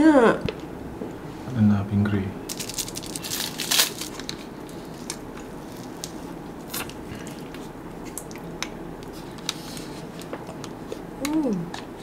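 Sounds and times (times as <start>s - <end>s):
chewing a snack: 2.9s - 12.0s.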